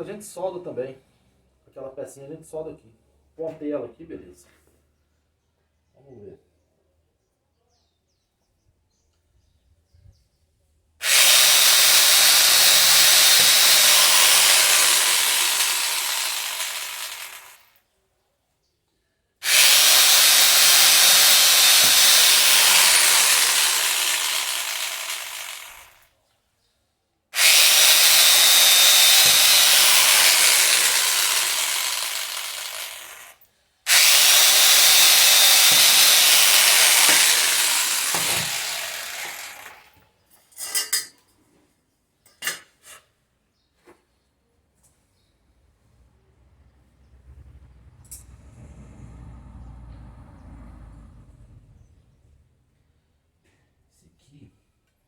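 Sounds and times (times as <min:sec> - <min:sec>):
electric drill grinding into metal: 0:11.0 - 0:17.7, 0:19.4 - 0:26.0, 0:27.4 - 0:40.0.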